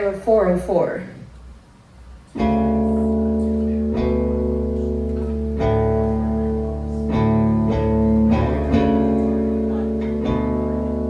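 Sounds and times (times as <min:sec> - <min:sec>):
guitar chords ringing: 0:02.4 - 0:11.0
low bass: 0:02.4 - 0:11.0.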